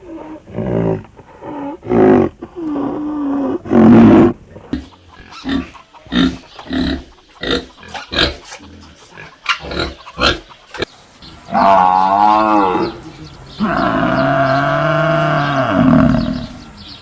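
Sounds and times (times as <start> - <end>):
cow grunting: 0.0 - 10.9, 11.5 - 16.7
cow mooing: 13.6 - 16.6.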